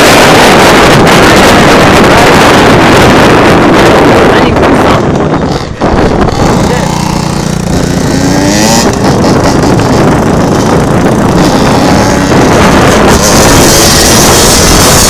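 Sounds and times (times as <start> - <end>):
wind noise on microphone: 0.0 - 15.0
two-stroke dirt bike engine revving: 5.5 - 15.0.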